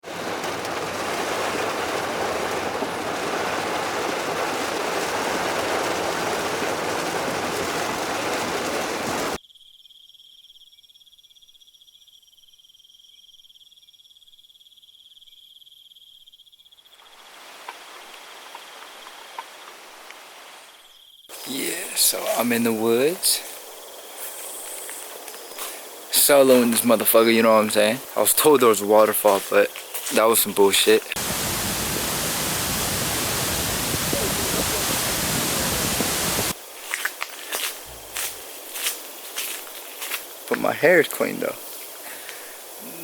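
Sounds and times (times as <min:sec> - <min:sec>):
faint hiss: 0:16.9 - 0:43.0
high-pitched insect trill: 0:20.8 - 0:30.3, 0:36.0 - 0:43.0
loud rush of noise: 0:31.1 - 0:36.6.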